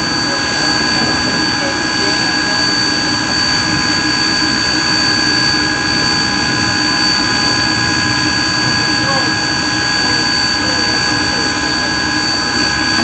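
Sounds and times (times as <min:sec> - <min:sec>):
high whine: 0:00.0 - 0:13.0.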